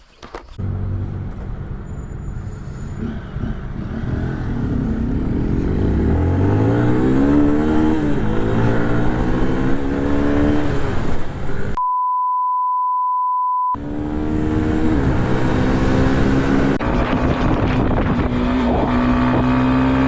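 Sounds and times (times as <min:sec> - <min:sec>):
motorcycle engine accelerating: 0:03.0 - 0:11.8, 0:13.8 - 0:20.0.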